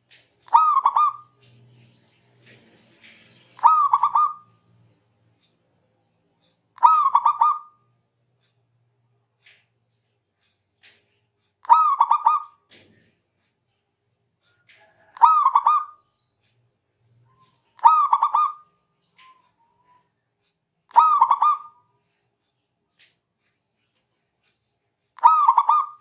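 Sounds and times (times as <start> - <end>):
dove cooing: 0.5 - 1.5, 3.6 - 4.5, 6.8 - 7.8, 11.7 - 12.9, 14.8 - 16.0, 17.8 - 19.3, 20.9 - 21.8, 25.2 - 26.0.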